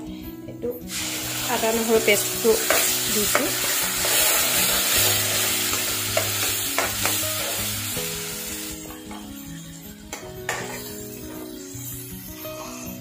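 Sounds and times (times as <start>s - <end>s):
paste sizzling in hot oil: 0.9s - 9.1s, 10.5s - 12.3s
metal spoon knocking pan: 2.6s - 7.6s.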